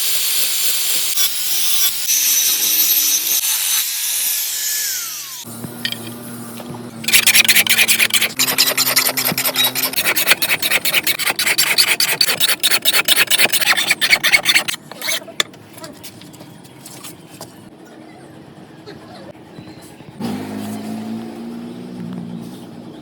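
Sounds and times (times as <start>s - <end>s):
file scraping steel blade: 5.8s - 15.5s.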